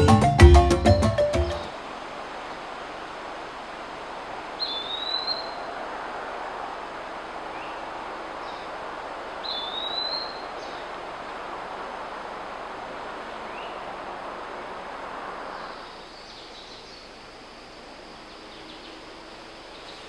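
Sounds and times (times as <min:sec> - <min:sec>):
forest ambience hiss: 0:00.0 - 0:20.0
bird call: 0:04.6 - 0:05.8, 0:09.4 - 0:10.9.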